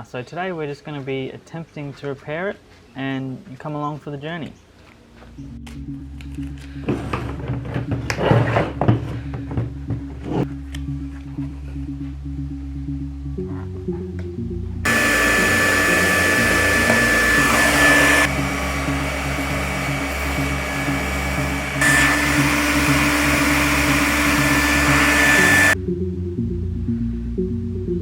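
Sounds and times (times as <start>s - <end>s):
background music: 4.6s - 28.0s
power tool motor whining: 14.9s - 25.8s.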